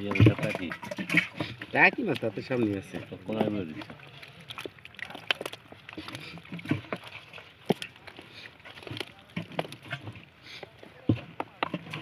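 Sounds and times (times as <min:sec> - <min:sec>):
sharp knocks and clatter: 0:00.0 - 0:01.6.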